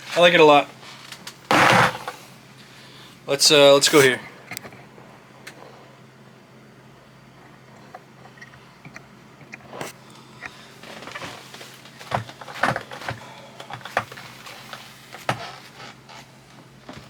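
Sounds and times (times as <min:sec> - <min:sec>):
skateboard wheels rolling: 0:01.5 - 0:02.3.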